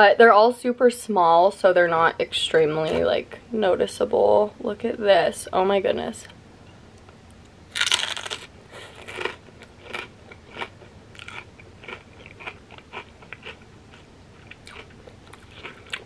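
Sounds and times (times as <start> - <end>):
crunchy chip chewing: 7.7 - 16.0
loud crunch of biting: 7.7 - 16.0.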